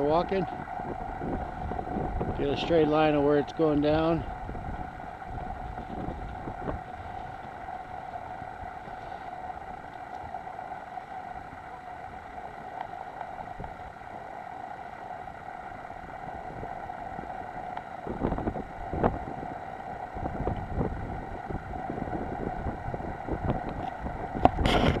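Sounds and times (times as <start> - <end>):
steady pitched hum: 0.0 - 25.0
wind gusting against microphone: 0.0 - 25.0.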